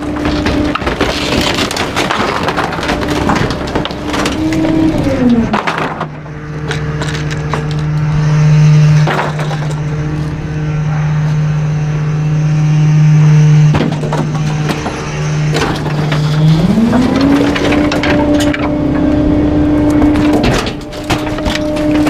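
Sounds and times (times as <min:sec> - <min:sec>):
sharp cracks: 0:00.0 - 0:08.1
garbage truck packer crushing: 0:00.0 - 0:11.4, 0:13.5 - 0:22.0
truck engine and hydraulics humming: 0:00.0 - 0:22.0.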